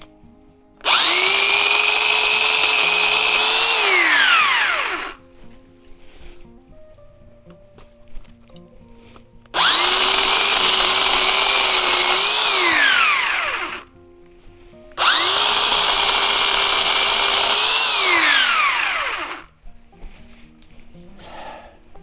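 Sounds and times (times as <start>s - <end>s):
electric chainsaw cutting branch: 0.8s - 5.2s, 9.6s - 13.9s, 15.0s - 19.5s.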